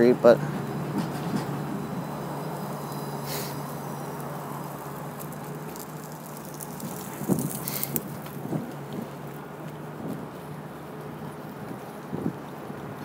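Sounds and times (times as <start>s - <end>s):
low hum: 0.0s - 13.0s
street noise: 0.0s - 13.0s
short hiss: 2.6s - 5.0s, 7.5s - 8.0s.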